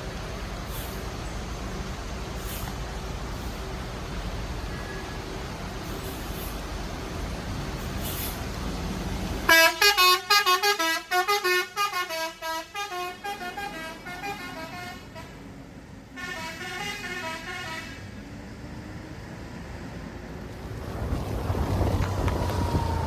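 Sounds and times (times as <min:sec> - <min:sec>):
engine and road rumble: 0:00.0 - 0:23.0
bus musical horn: 0:09.5 - 0:18.2.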